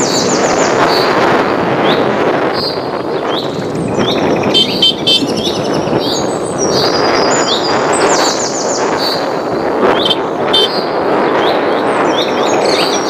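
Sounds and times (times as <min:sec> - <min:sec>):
loud steady rushing noise: 0:00.0 - 0:13.0
songbirds chirping: 0:01.8 - 0:13.0
bird trills: 0:02.6 - 0:09.2, 0:09.9 - 0:13.0
high whistles: 0:04.5 - 0:05.5.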